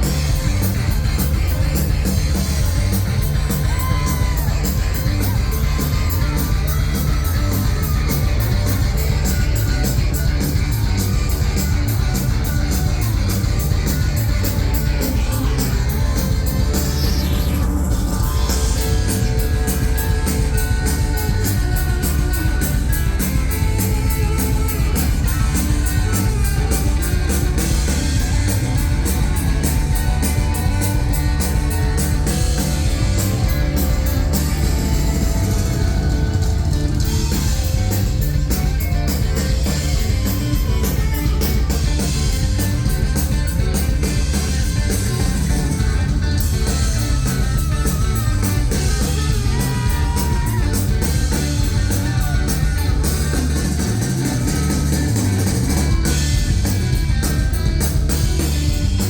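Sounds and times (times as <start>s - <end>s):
driving drums: 0.0s - 59.0s
heavy bass: 0.0s - 59.0s
live rock band playing: 0.0s - 59.0s.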